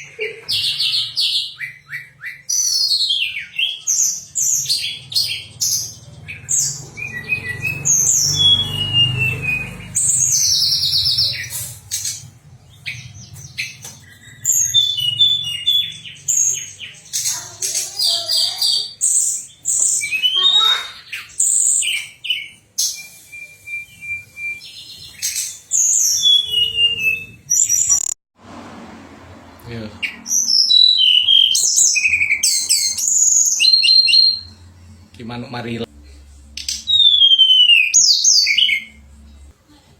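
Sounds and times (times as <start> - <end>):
songbird singing: 0.0 - 28.2, 30.0 - 35.3, 36.5 - 39.5.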